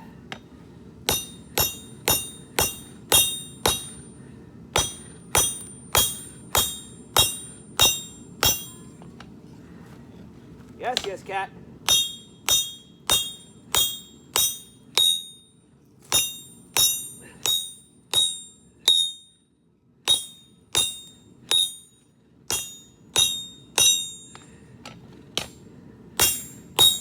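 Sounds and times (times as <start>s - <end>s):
hammer clanging on steel: 1.1s - 4.1s, 4.8s - 9.1s, 11.9s - 15.4s, 16.1s - 19.3s, 20.1s - 24.6s, 25.4s - 27.0s.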